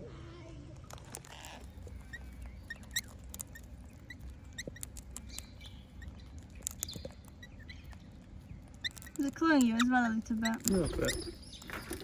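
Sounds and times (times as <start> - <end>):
small birds chirping: 0.3 - 12.0
sharp ticks and clicks: 0.9 - 11.4.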